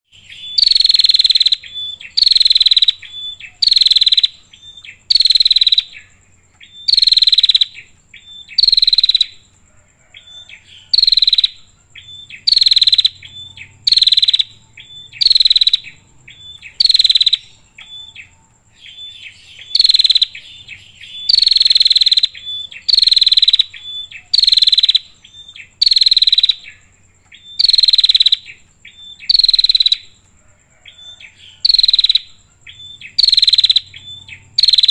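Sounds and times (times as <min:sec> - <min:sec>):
bird harsh buzzy calls: 0:00.1 - 0:09.5, 0:10.1 - 0:34.9.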